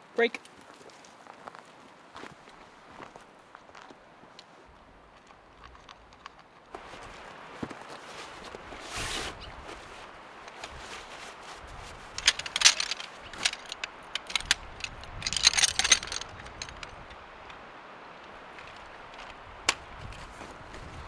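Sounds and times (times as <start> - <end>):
metallic clinking and jingling: 9.5 - 17.6, 18.2 - 21.0.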